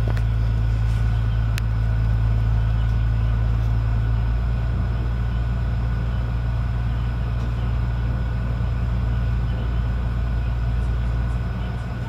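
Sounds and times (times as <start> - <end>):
train deep drone: 0.0 - 12.0.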